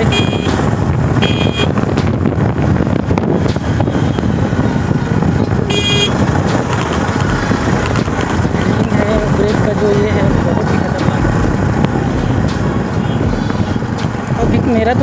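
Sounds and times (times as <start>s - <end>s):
vehicle horn toots: 0.0s - 0.6s, 1.2s - 1.8s, 5.7s - 6.2s
motorcycle engine: 0.0s - 15.0s
road noise: 0.0s - 15.0s.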